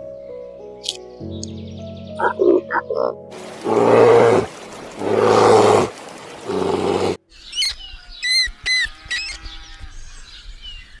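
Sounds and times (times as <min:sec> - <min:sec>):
lion grunting roar: 0:02.2 - 0:07.2.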